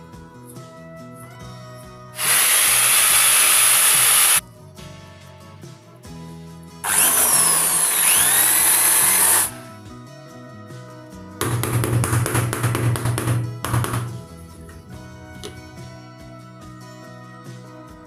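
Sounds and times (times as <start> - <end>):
background music: 0.0 - 18.0
handheld power tool running: 2.2 - 4.4, 6.9 - 9.7.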